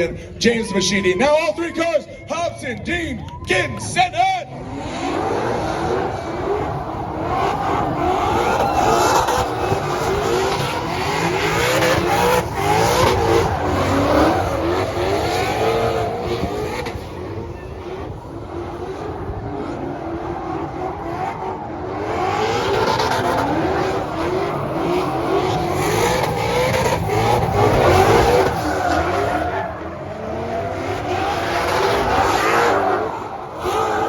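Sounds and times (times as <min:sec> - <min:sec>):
car engines revving: 0:02.8 - 0:34.0.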